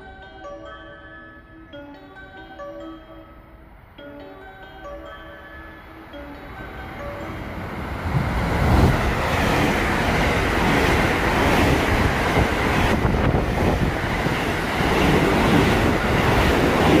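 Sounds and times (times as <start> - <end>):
train passing at speed: 3.7 - 17.0.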